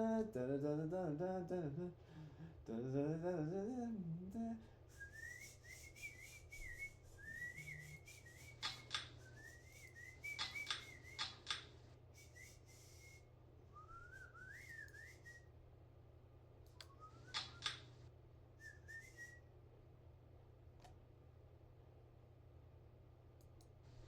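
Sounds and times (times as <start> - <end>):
ceiling fan hum: 0.0 - 24.0
man whistling: 4.9 - 11.6, 12.2 - 15.5, 16.9 - 17.7, 18.6 - 19.5
sharp clicks: 8.5 - 9.2, 10.3 - 11.7, 16.6 - 17.9.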